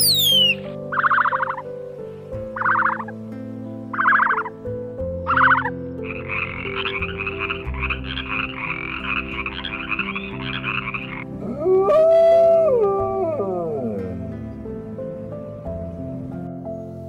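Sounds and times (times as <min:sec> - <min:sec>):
frogs croaking: 0:00.0 - 0:01.8, 0:02.4 - 0:11.4
background music: 0:00.0 - 0:17.0
wolf howling: 0:09.6 - 0:14.2.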